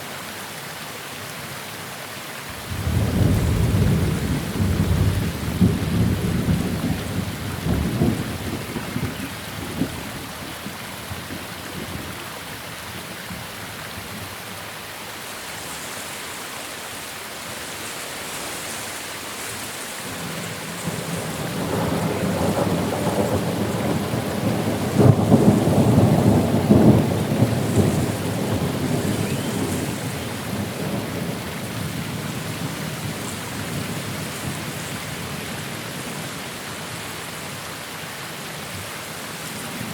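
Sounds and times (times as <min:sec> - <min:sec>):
steady rain: 0:00.0 - 0:39.9
thunder rolling: 0:02.5 - 0:10.1, 0:20.4 - 0:34.6.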